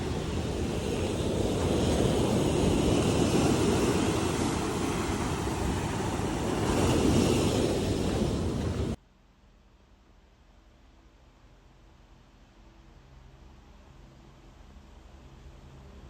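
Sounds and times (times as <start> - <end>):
surf washing on shore: 0.0 - 9.0
wind rumbling on microphone: 0.0 - 9.0.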